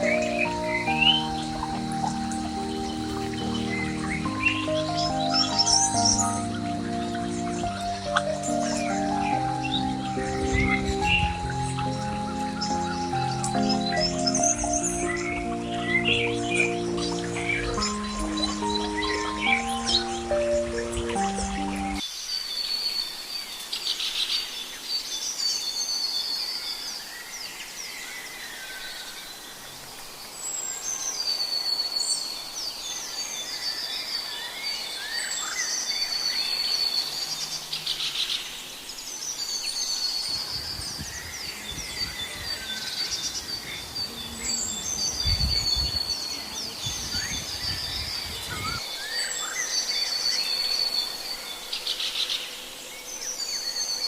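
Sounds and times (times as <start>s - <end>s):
high bird trill: 0.0s - 22.0s, 34.5s - 54.0s
birds chirping and singing: 0.0s - 54.0s.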